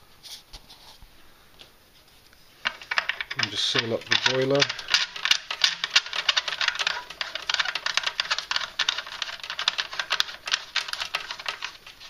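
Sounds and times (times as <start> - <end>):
boiler cap clicking and rattling: 2.6 - 12.0.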